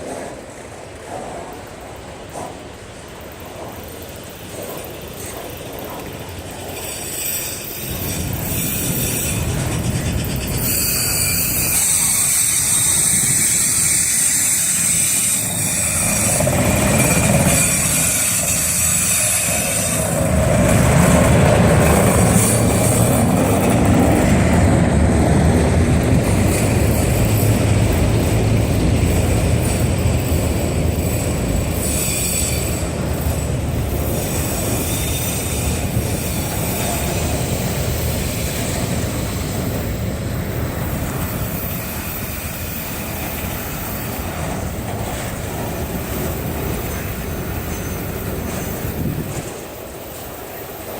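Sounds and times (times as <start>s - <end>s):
steel wheels rumbling on rail: 0.0s - 50.9s
high-pitched wheel squeal: 6.8s - 20.4s, 31.0s - 33.4s, 46.7s - 49.3s.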